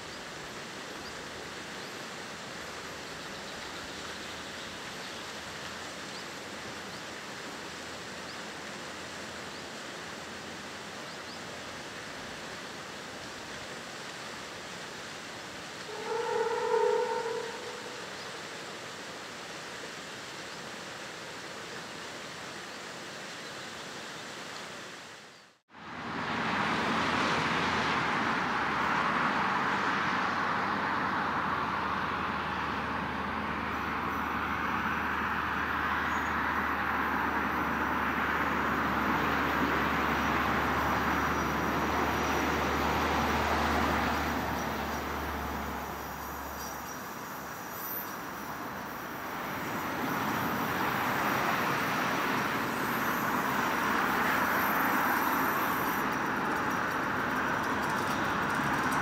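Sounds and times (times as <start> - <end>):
train wheel rolling noise: 48.0 - 59.0.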